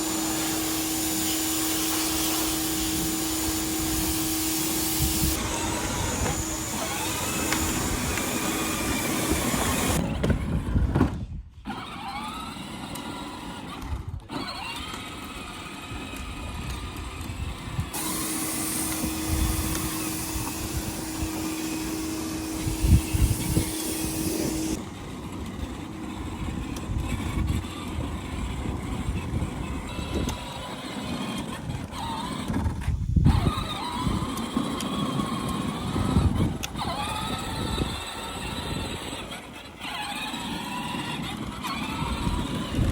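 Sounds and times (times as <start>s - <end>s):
pressure washer motor hum: 0.0s - 10.0s, 17.9s - 25.4s
water spray hissing: 0.0s - 10.0s, 18.0s - 24.8s
outdoor noise: 0.0s - 42.9s.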